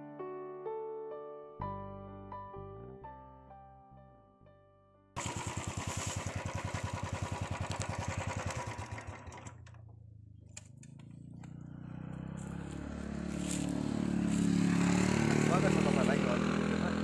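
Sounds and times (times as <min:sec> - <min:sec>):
piano music: 0:00.0 - 0:05.2
motorcycle engine idling: 0:05.2 - 0:17.0.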